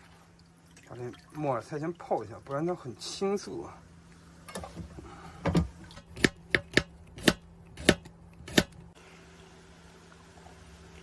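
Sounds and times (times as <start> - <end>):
sharp knocks of food preparation: 5.5 - 8.8.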